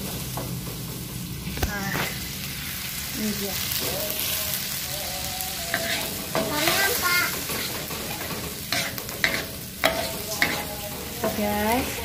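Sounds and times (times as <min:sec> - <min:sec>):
spice paste sizzling in oil: 0:00.0 - 0:12.0
metal spatula scraping a wok: 0:05.6 - 0:12.0.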